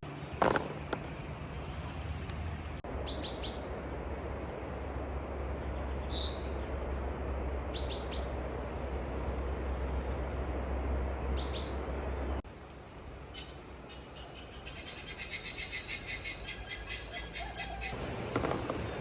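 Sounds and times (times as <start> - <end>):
small bird chirping: 3.0 - 3.8, 7.7 - 8.4, 11.4 - 11.9.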